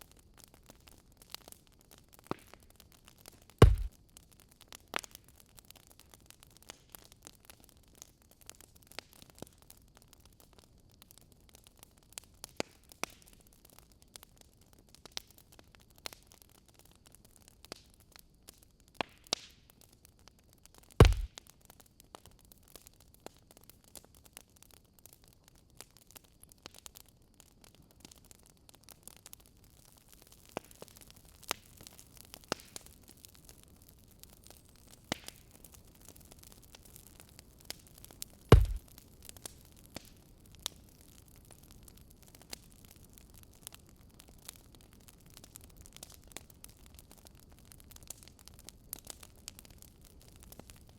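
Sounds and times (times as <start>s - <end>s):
wood fire crackling: 0.1s - 19.9s, 20.7s - 50.9s
dull heavy thud: 3.6s - 3.9s, 21.0s - 21.3s, 38.5s - 38.8s
loud deep knock: 3.6s - 3.9s, 21.0s - 21.3s, 38.6s - 38.8s.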